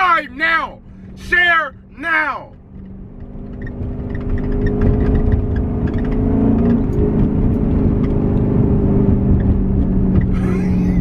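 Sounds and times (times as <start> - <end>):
loud deep engine exhaust rumble: 0.0 - 11.0.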